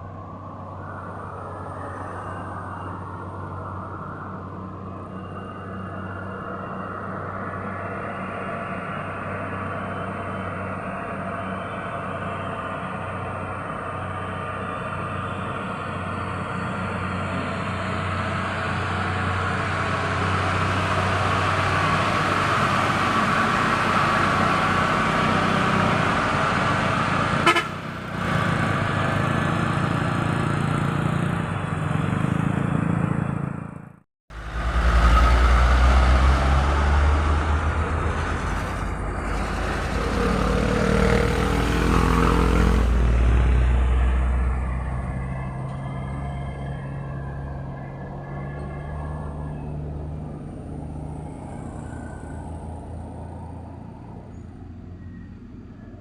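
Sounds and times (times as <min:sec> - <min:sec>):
heavy truck engines labouring: 0:00.0 - 0:56.0
vehicle horn: 0:27.4 - 0:28.0.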